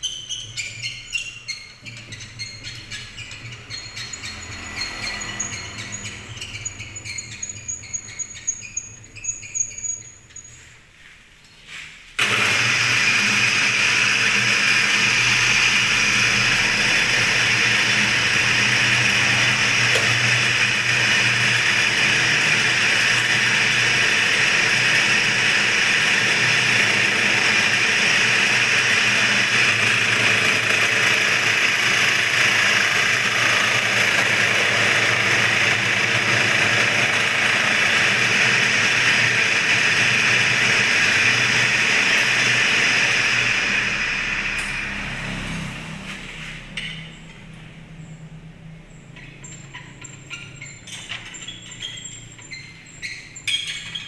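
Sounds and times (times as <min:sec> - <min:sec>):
machine motor running steadily: 0:12.2 - 0:45.4.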